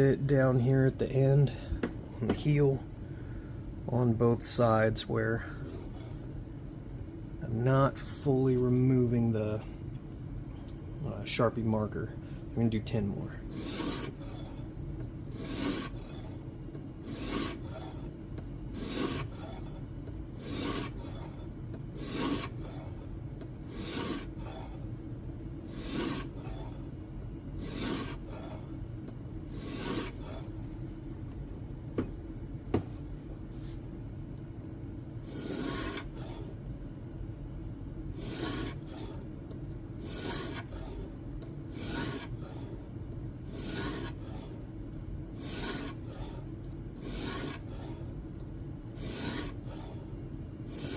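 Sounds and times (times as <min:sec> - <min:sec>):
sharpening plate rasping on knife: 0:13.6 - 0:14.2, 0:15.3 - 0:16.0, 0:17.1 - 0:17.6, 0:18.8 - 0:19.3, 0:20.4 - 0:21.0, 0:22.0 - 0:22.6, 0:23.7 - 0:24.3, 0:25.8 - 0:26.3, 0:27.6 - 0:28.2, 0:29.6 - 0:30.2, 0:35.4 - 0:36.1, 0:38.2 - 0:38.8, 0:40.0 - 0:40.7, 0:41.7 - 0:42.4, 0:43.5 - 0:44.2, 0:45.4 - 0:46.0, 0:47.0 - 0:47.6, 0:49.0 - 0:49.6.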